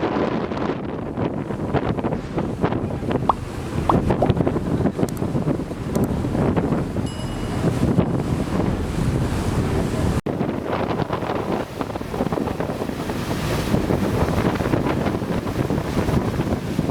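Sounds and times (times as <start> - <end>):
rushing water from boat: 0.0 - 16.9
wind rumble on microphone: 0.0 - 16.9.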